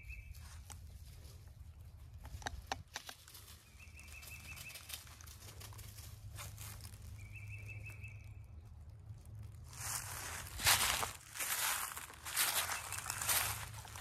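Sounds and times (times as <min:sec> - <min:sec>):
leaves rustling: 0:03.2 - 0:07.8, 0:09.2 - 0:14.0.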